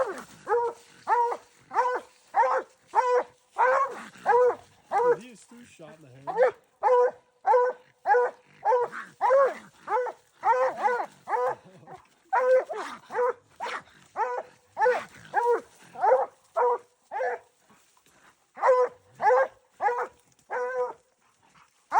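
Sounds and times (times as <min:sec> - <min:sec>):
dog barking sharply: 0:00.5 - 0:05.2, 0:06.3 - 0:11.6.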